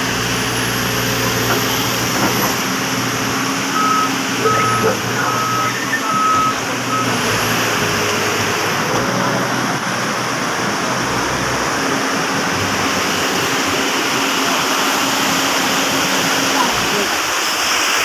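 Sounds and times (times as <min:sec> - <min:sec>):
floodwater rushing: 0:00.1 - 0:18.0
reversing beeper: 0:03.7 - 0:07.3.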